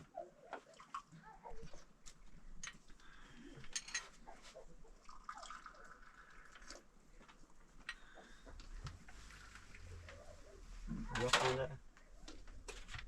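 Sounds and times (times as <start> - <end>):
water dripping and trickling: 5.0 - 7.4.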